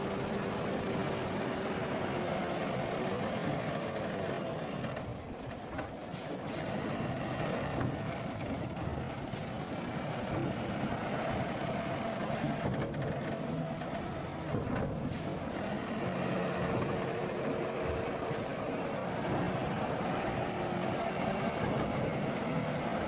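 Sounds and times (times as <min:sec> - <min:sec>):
diesel earthmoving machinery running: 0:00.0 - 0:23.0.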